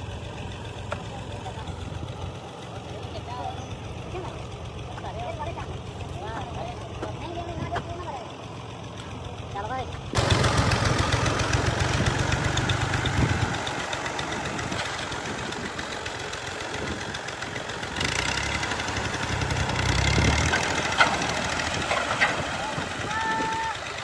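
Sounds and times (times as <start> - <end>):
diesel engine drone: 0.0 - 6.7, 8.4 - 24.0
threshing machinery noise: 10.2 - 24.0.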